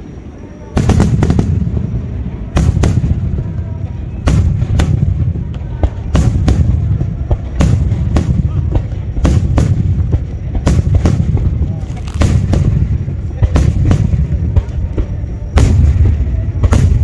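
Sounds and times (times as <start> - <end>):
firework shells bursting: 4.2 - 17.0.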